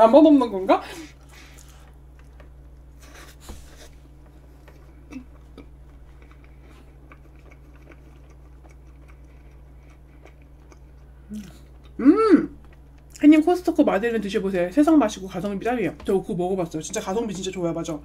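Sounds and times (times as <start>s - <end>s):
low electrical hum: 0.0s - 18.0s
soft chewing with mouth clicks: 1.1s - 12.0s.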